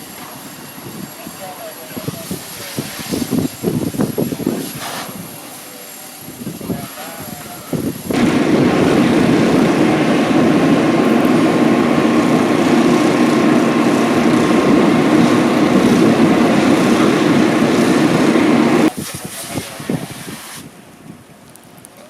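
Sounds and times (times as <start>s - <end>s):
large engine running: 6.4s - 18.9s.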